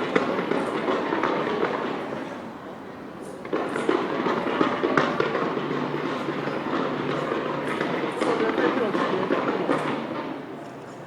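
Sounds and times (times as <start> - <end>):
fireworks bursting and crackling: 0.0 - 10.6.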